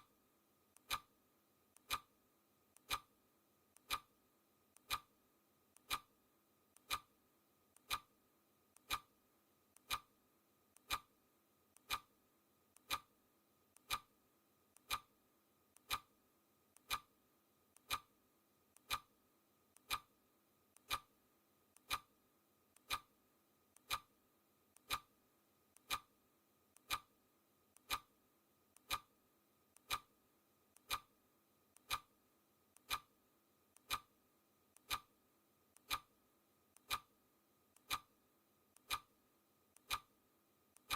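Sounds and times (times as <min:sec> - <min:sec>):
clock ticking: 0:00.8 - 0:01.1, 0:01.7 - 0:02.1, 0:02.7 - 0:03.1, 0:03.7 - 0:04.1, 0:04.7 - 0:05.1, 0:05.7 - 0:06.1, 0:06.7 - 0:07.1, 0:07.7 - 0:08.1, 0:08.7 - 0:09.1, 0:09.7 - 0:10.1, 0:10.7 - 0:11.1, 0:11.7 - 0:12.1, 0:12.7 - 0:13.1, 0:13.7 - 0:14.1, 0:14.7 - 0:15.1, 0:15.7 - 0:16.1, 0:16.7 - 0:17.1, 0:17.7 - 0:18.1, 0:18.7 - 0:19.1, 0:19.7 - 0:21.1, 0:21.7 - 0:23.1, 0:23.7 - 0:24.1, 0:24.7 - 0:28.2, 0:28.8 - 0:29.2, 0:29.8 - 0:30.1, 0:30.7 - 0:31.1, 0:31.7 - 0:34.1, 0:34.7 - 0:35.1, 0:35.8 - 0:37.2, 0:37.8 - 0:38.2, 0:38.8 - 0:39.2, 0:39.8 - 0:40.2.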